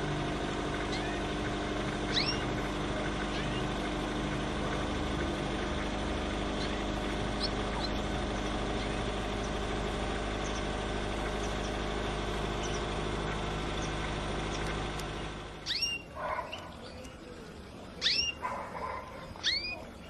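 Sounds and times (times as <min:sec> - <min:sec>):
engine-like hum: 0:00.0 - 0:20.0.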